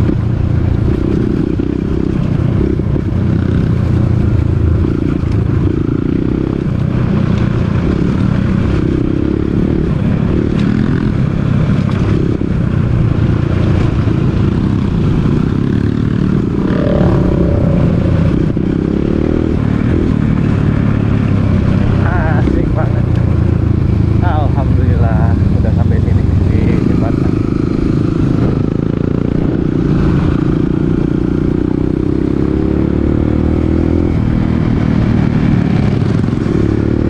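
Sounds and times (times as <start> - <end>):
dirt bike engine: 14.0 - 21.0.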